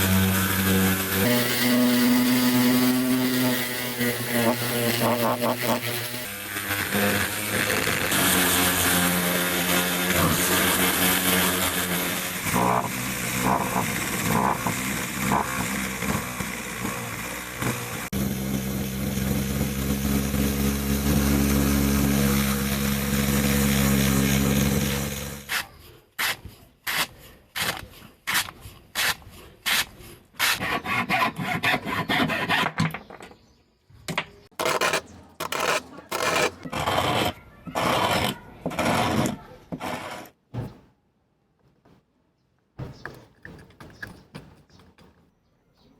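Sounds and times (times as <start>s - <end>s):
power tool running: 0.0s - 25.5s, 34.5s - 37.1s.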